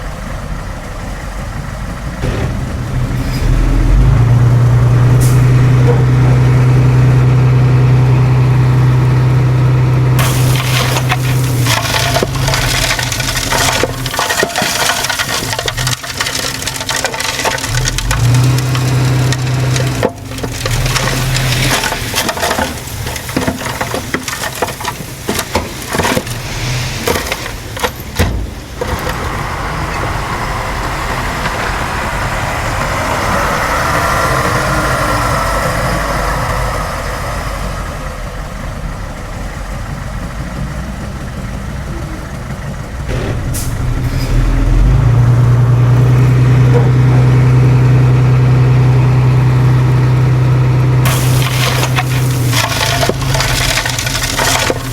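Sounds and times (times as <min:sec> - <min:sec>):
diesel engine of heavy machine: 0:00.0 - 0:54.9
dense crackling and snapping: 0:10.2 - 0:29.2, 0:51.0 - 0:54.9.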